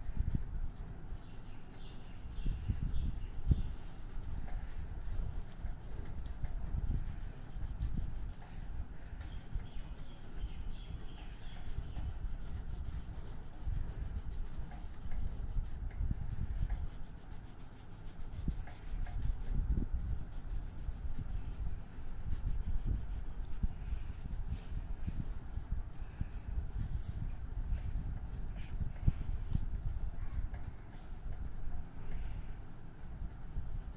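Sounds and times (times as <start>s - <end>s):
colouring on paper: 0.0s - 25.4s.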